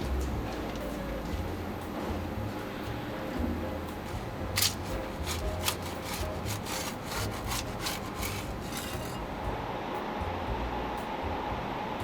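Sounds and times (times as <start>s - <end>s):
abrasive rubbing strokes: 4.1s - 9.5s.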